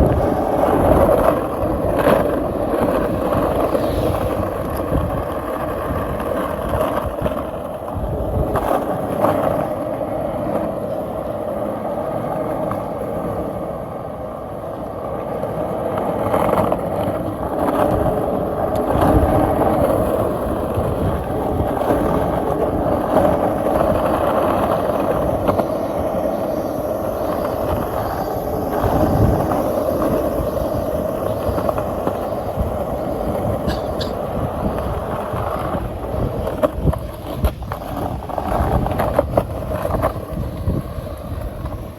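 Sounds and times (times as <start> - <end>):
skateboard wheels rolling on pavement: 0.0 - 41.9.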